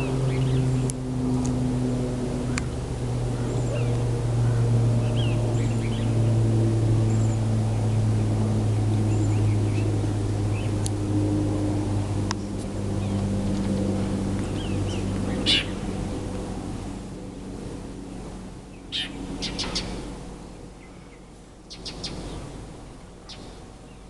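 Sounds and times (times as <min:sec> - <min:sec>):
low motor hum: 0:00.0 - 0:24.0
bird chirps: 0:14.4 - 0:15.8, 0:18.8 - 0:20.0, 0:20.8 - 0:22.4, 0:23.2 - 0:24.0.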